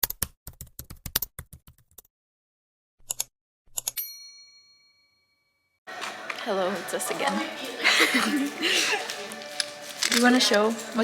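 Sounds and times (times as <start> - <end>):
bell ding: 4.0 - 5.7.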